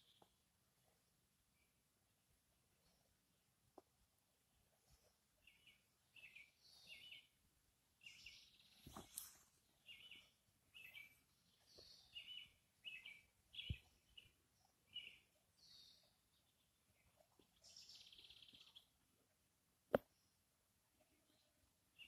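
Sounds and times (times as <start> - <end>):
birds chirping: 5.0 - 7.4, 8.0 - 19.0.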